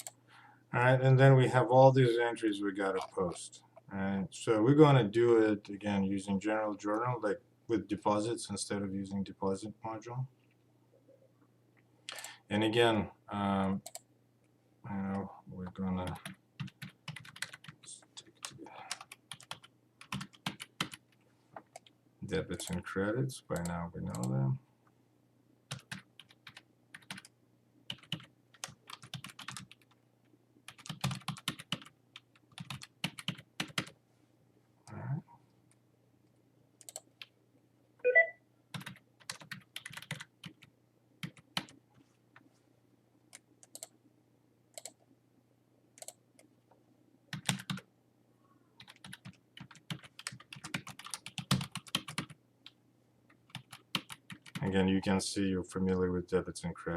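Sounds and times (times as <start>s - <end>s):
typing on computer keyboard: 16.0s - 21.1s, 25.7s - 27.3s, 27.9s - 30.0s, 30.7s - 33.9s, 36.8s - 37.1s, 38.7s - 41.8s, 43.3s - 43.9s, 47.3s - 47.8s, 48.8s - 52.8s, 53.4s - 54.7s.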